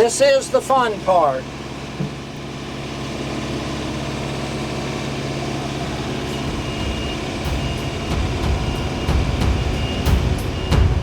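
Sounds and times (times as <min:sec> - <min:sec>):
engine running: 0:00.0 - 0:11.0
heavy low rumble: 0:05.5 - 0:11.0.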